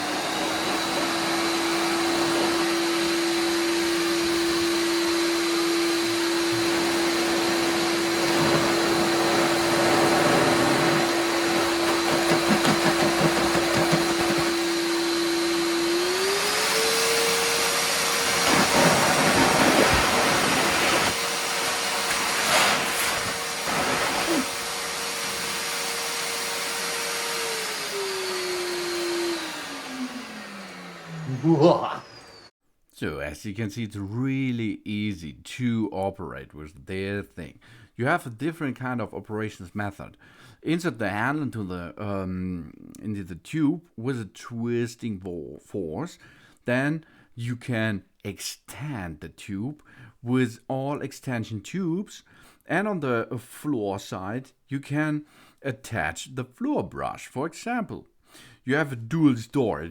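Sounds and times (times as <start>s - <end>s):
shop vacuum motor whine: 0.0s - 32.5s
air rushing from hose: 18.2s - 21.2s, 21.8s - 26.0s.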